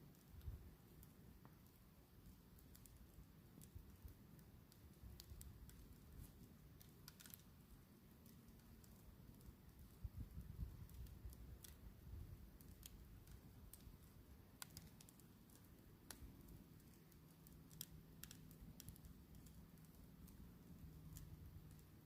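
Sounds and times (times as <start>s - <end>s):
campfire crackling: 0.0s - 22.0s.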